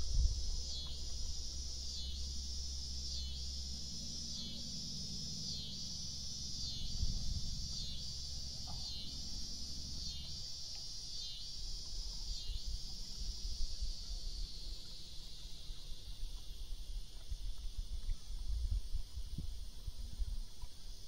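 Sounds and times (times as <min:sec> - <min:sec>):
low rumble: 0:00.0 - 0:05.3, 0:05.9 - 0:10.0
insects buzzing: 0:00.0 - 0:21.0.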